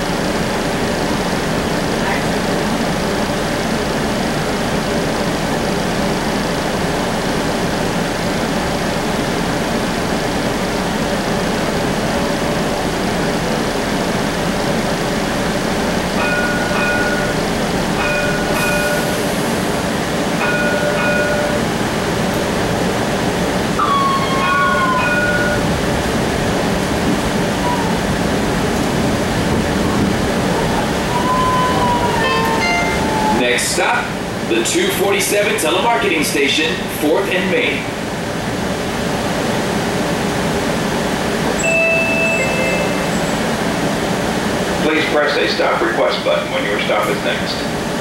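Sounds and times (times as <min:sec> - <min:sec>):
streetcar rumble: 0:00.0 - 0:48.0
high squeal: 0:23.8 - 0:25.6, 0:31.1 - 0:33.4
high ringing tone: 0:23.8 - 0:25.7, 0:32.3 - 0:33.4, 0:41.6 - 0:43.4.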